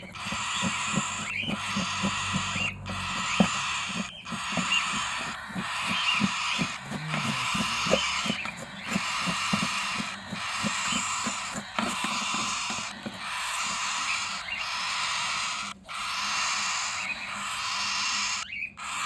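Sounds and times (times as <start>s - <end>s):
short low bird calls: 0.0s - 13.4s
caged birds chattering: 0.0s - 19.0s.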